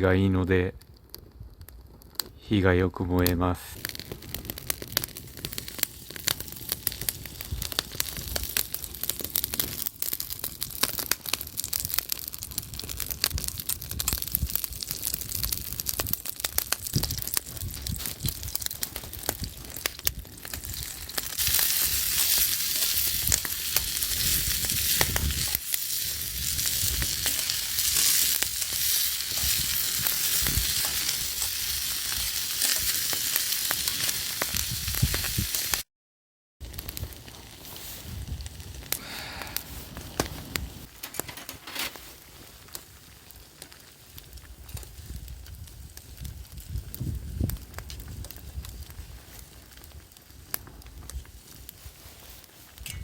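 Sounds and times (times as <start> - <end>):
wood fire crackling and popping: 0.0 - 35.9, 36.6 - 53.0
food sizzling in a hot pan: 3.8 - 35.9.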